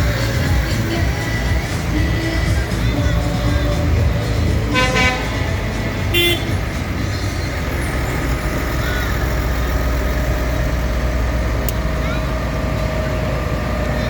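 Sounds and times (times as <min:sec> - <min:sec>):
tractors rumbling past: 0:00.0 - 0:14.0
horn toots: 0:04.7 - 0:06.8.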